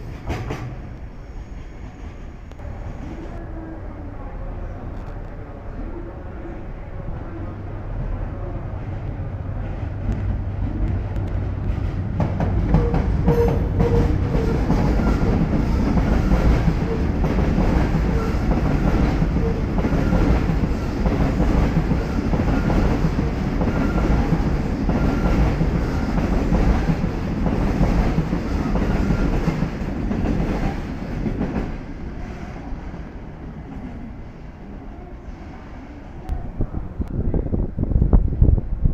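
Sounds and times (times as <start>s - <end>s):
train wheels clattering on rails: 0.0s - 1.8s, 9.7s - 31.9s.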